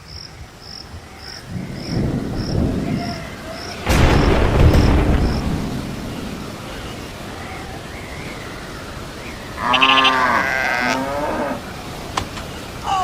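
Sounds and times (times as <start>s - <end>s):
animal bleating: 9.6s - 11.6s.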